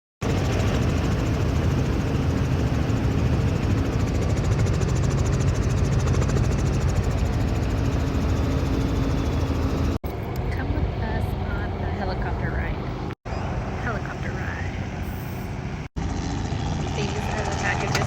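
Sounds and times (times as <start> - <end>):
helicopter engine and rotor: 0.2 - 12.1, 12.7 - 18.0.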